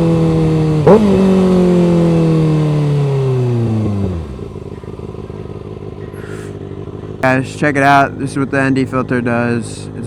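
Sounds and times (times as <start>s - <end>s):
motorcycle engine winding down: 0.0s - 7.2s.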